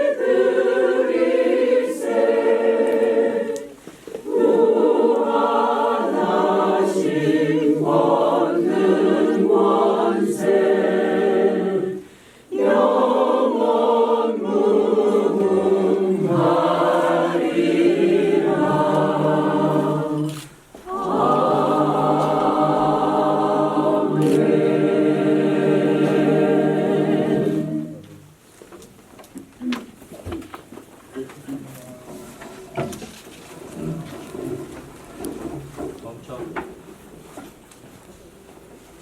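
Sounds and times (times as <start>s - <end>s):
choir singing a hymn: 0.0s - 28.2s.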